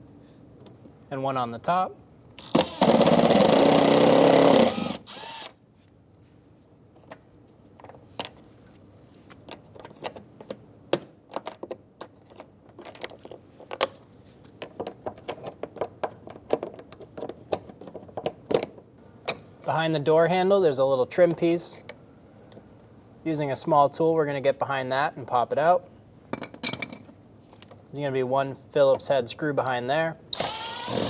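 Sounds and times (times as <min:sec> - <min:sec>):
cordless power driver whirring: 0:02.4 - 0:05.6, 0:30.3 - 0:31.0.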